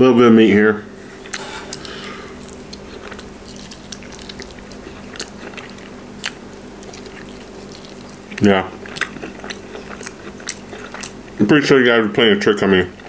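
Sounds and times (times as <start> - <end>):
steady low hum: 0.0 - 13.0
man chewing and biting food: 1.1 - 11.5.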